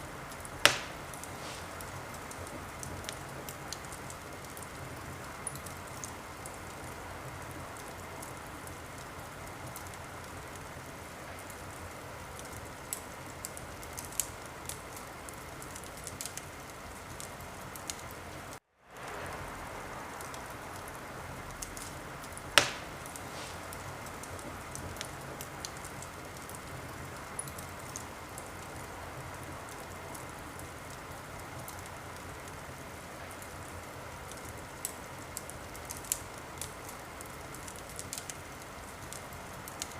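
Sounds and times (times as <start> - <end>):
wood fire crackling: 0.0 - 39.9
loud fire pop: 0.6 - 1.8, 22.6 - 24.4.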